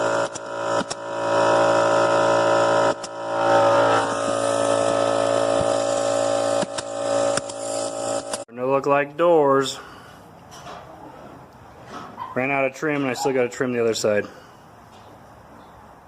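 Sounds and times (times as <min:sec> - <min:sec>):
power tool motor whine: 0:00.0 - 0:08.5.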